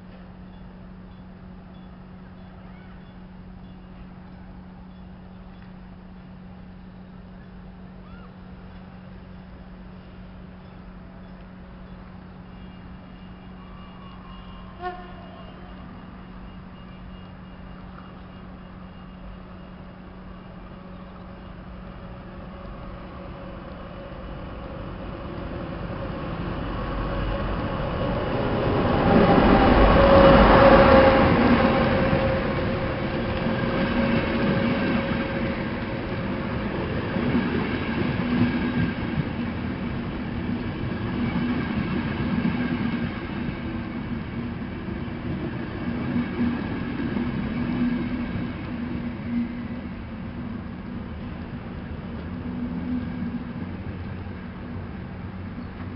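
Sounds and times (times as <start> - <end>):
diesel locomotive passing: 0.0 - 55.9
train coaches rolling past: 0.0 - 55.9.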